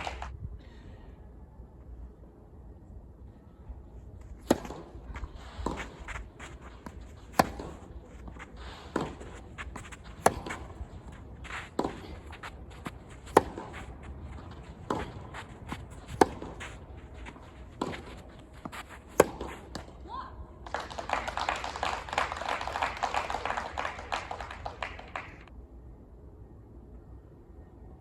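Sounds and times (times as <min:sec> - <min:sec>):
footsteps on court: 0:04.0 - 0:20.0
ball bouncing: 0:04.4 - 0:19.9
racket hitting tennis ball: 0:04.4 - 0:20.0.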